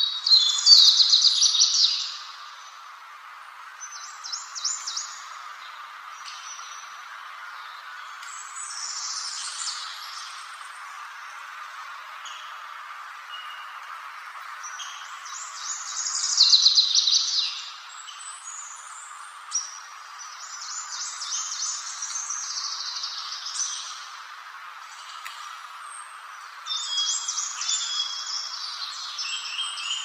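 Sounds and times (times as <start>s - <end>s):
songbird twittering: 0.0s - 2.6s, 14.6s - 24.1s, 26.7s - 30.0s
steady background hiss: 0.0s - 30.0s.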